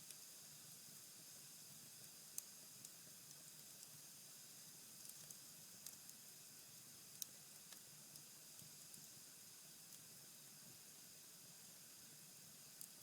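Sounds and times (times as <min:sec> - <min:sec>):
fire crackles: 0:04.6 - 0:09.2.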